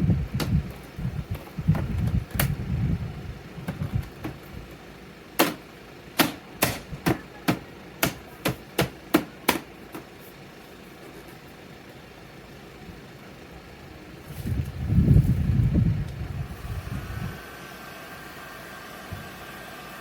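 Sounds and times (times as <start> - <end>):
rubbing and handling noise: 8.5 - 11.6.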